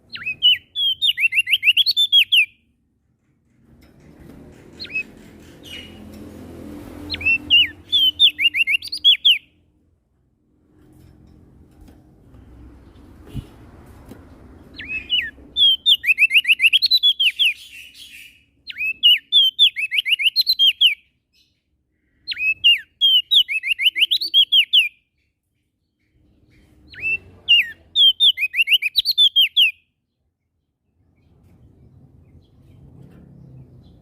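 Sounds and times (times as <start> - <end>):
songbird whistled phrases: 7.1 - 9.4, 14.8 - 21.0, 22.3 - 25.0, 26.9 - 29.8.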